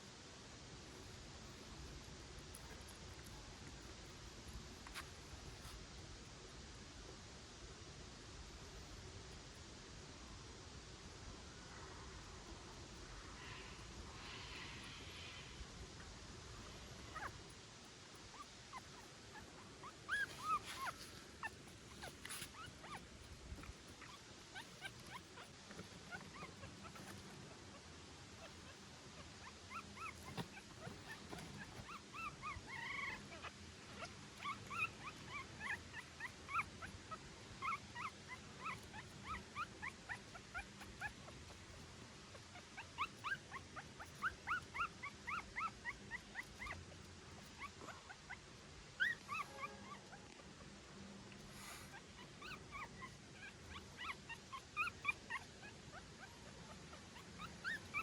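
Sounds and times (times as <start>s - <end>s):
puppy whimpering in high squeaks: 18.3s - 23.0s, 26.1s - 27.1s, 29.4s - 41.2s, 42.5s - 46.8s, 49.0s - 50.2s, 52.2s - 58.0s.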